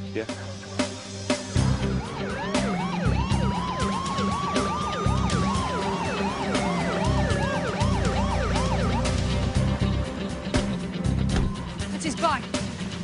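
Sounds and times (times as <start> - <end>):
dramatic music with pounding beats: 0.1 - 13.0
siren wailing tone: 1.6 - 10.1
police siren yelping: 1.6 - 10.4.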